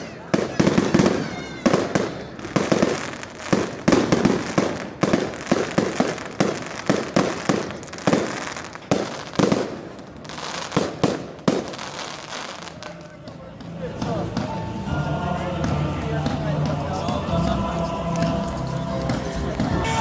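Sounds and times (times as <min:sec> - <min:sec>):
fireworks bangs: 0:00.0 - 0:13.0
fireworks crackling: 0:00.0 - 0:20.0.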